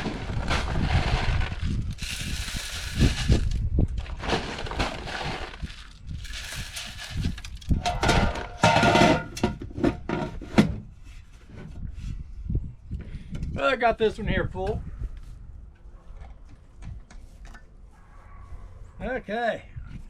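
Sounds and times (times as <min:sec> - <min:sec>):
birdseed pouring and rattling: 0:01.2 - 0:03.6, 0:04.4 - 0:07.7.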